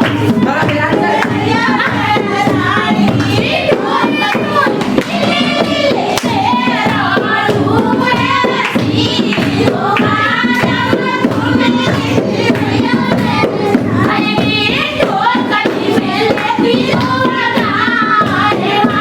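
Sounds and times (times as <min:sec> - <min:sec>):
hand claps: 0:00.0 - 0:03.4, 0:06.1 - 0:06.9, 0:08.1 - 0:13.2
several voices singing folk song: 0:00.0 - 0:19.0.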